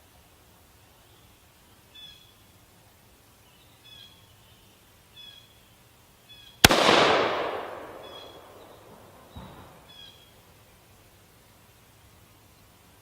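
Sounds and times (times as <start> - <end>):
faint bird chirps: 0.8 - 2.5, 3.4 - 6.6, 7.9 - 10.4
rifle shot with echo: 6.6 - 9.8.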